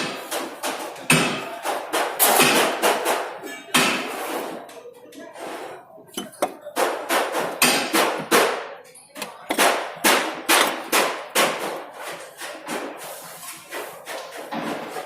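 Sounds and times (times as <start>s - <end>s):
hammer striking metal: 6.2s - 8.6s, 9.2s - 11.8s.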